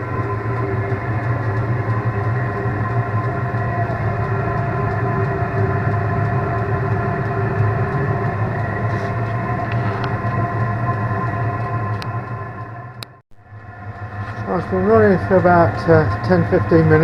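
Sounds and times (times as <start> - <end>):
diesel air heater droning: 0.0 - 17.0.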